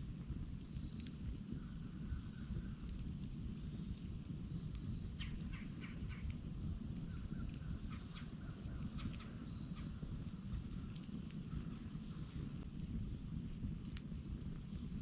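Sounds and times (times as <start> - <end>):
campfire flames rumbling: 0.0 - 15.0
wood crackling and popping: 0.0 - 15.0
faint bird calls: 5.1 - 6.4, 7.1 - 12.4.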